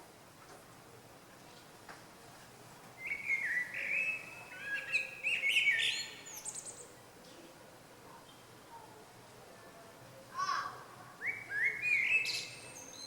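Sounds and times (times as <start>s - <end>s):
songbird chirps and trills: 2.9s - 13.0s.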